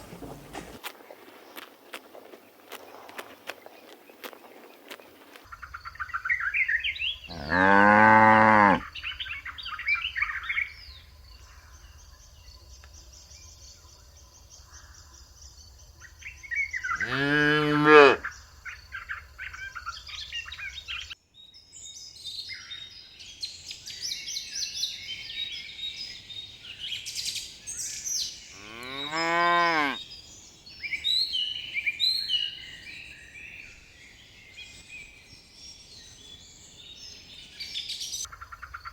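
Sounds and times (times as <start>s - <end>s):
small birds chirping: 0.0s - 7.8s, 18.3s - 38.9s
cows mooing: 7.3s - 8.9s, 17.0s - 18.2s, 28.6s - 30.0s.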